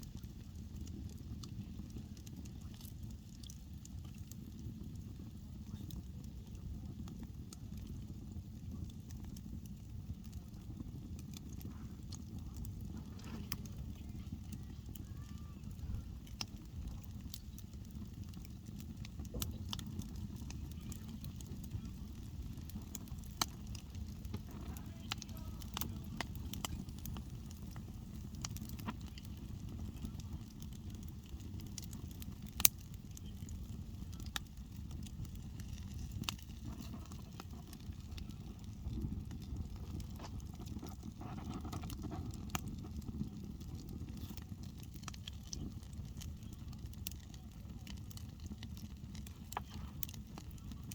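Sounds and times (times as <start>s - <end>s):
campfire crackling and popping: 0.0s - 50.9s
low fire rumble: 0.0s - 50.9s.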